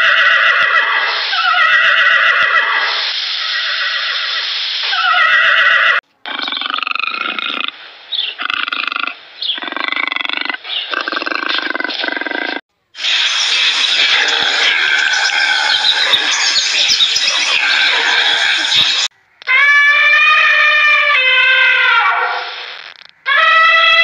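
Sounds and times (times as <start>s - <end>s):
lionesses roaring: 13.5s - 19.1s.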